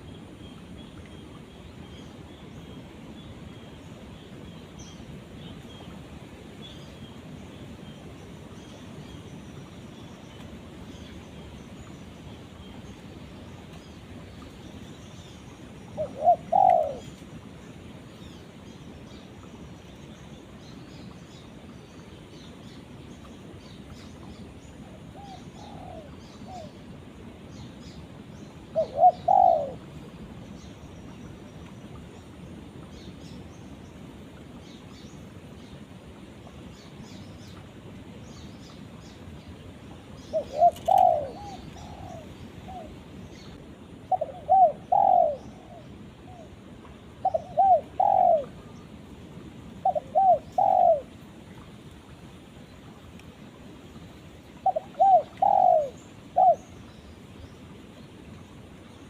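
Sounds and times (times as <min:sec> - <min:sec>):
steady background hiss: 0:00.0 - 0:59.0
dove cooing: 0:16.0 - 0:17.2, 0:25.2 - 0:26.8, 0:28.8 - 0:29.9, 0:40.3 - 0:43.0, 0:44.1 - 0:46.5, 0:47.2 - 0:48.6, 0:49.8 - 0:51.1, 0:54.6 - 0:56.7.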